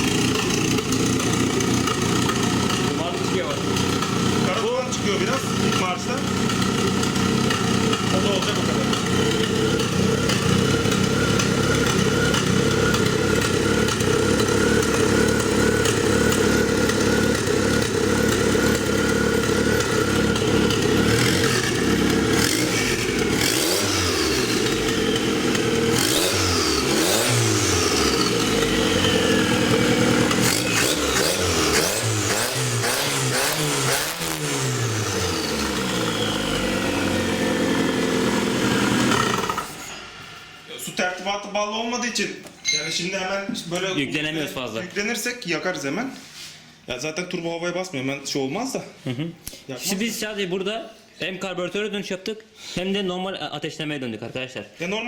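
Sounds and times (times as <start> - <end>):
car engine idling and revving: 0.0 - 40.7.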